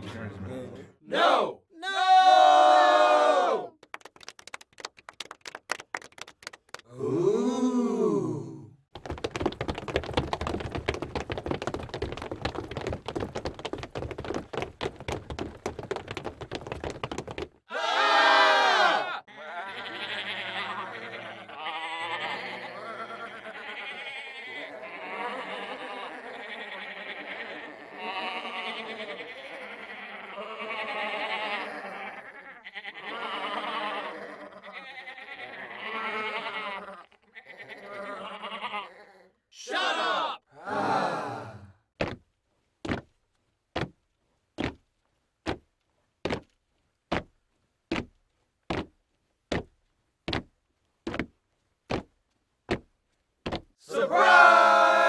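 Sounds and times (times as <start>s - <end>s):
group of people shouting: 1.0s - 3.8s, 6.9s - 8.7s, 17.7s - 19.3s, 39.6s - 41.7s, 53.9s - 55.0s
person making wavering cries: 6.9s - 8.8s.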